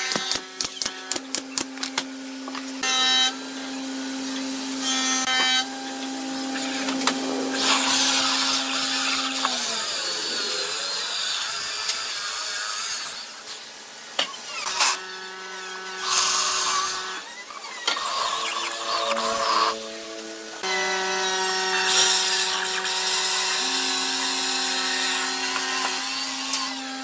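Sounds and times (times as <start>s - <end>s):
power tool cutting wood: 0.0s - 27.0s
motor starting: 5.9s - 11.2s, 17.4s - 20.6s.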